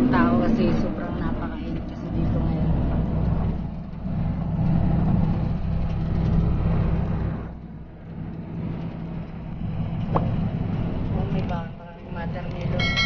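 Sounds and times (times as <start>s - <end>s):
road rumble: 0.0s - 13.0s
vehicle engine drone: 0.0s - 13.0s.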